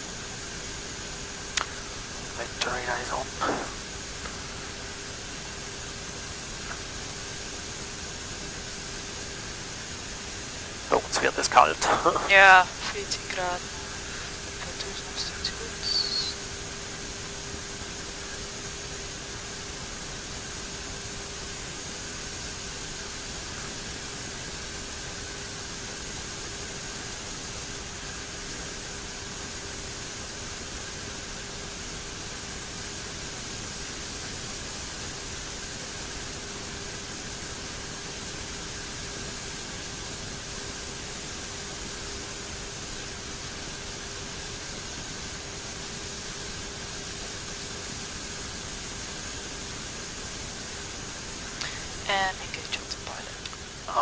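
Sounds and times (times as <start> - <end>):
faint high whine: 0.0 - 54.0
turboprop engines and airflow hiss: 0.0 - 54.0.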